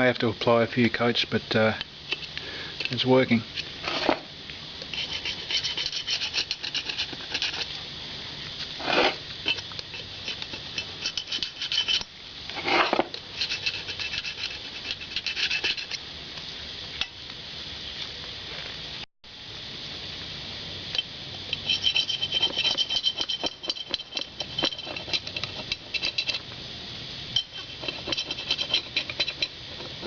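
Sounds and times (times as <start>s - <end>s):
hand scraper scraping gasket: 4.9s - 7.7s, 8.8s - 16.0s, 21.6s - 26.4s, 27.4s - 30.0s.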